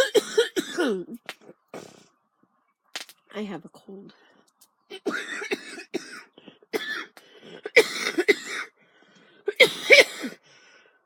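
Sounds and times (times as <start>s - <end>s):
woman coughing: 0.0s - 1.2s, 5.0s - 8.7s, 9.5s - 10.4s.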